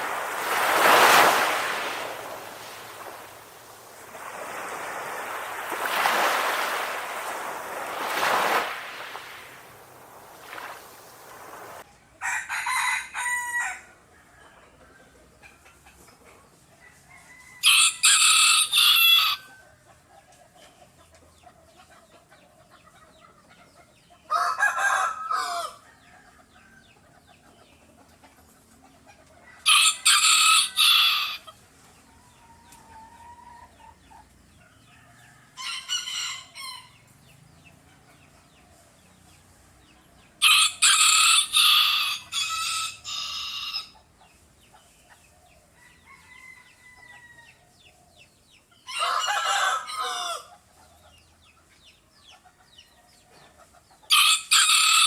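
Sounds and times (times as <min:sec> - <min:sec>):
faint chicken clucking: 0:01.4 - 0:55.0
rooster crowing: 0:10.4 - 0:13.9, 0:17.1 - 0:19.5, 0:24.3 - 0:25.9, 0:29.6 - 0:31.5, 0:40.4 - 0:43.9, 0:48.9 - 0:50.5, 0:54.1 - 0:55.0.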